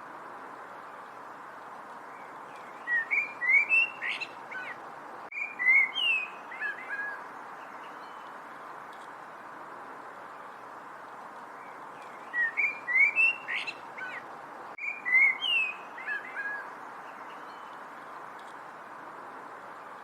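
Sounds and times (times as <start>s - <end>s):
steady background hiss: 0.0s - 20.0s
songbird singing whistled notes: 2.1s - 8.4s, 11.6s - 14.2s, 14.8s - 17.8s.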